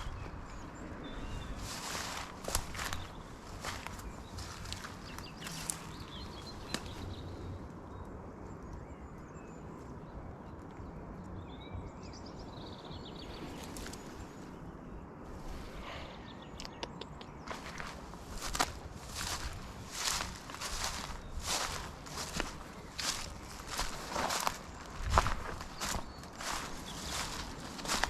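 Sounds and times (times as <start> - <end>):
low outdoor rumble: 0.0 - 28.0
small birds chirping: 0.0 - 28.0
footsteps: 17.5 - 28.0.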